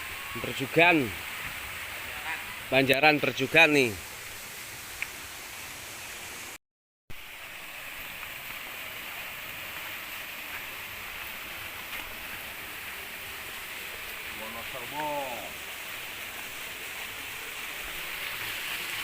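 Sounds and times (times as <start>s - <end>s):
river water rushing: 7.2s - 19.0s.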